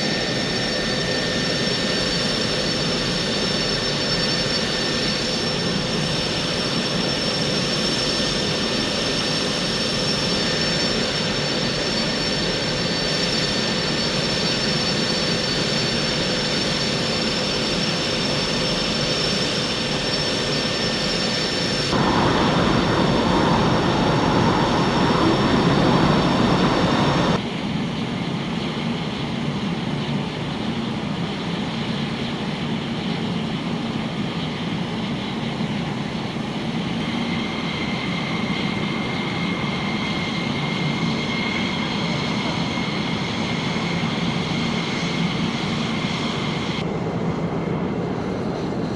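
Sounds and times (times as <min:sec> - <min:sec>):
fighter jet engine whine: 0:00.0 - 0:48.9.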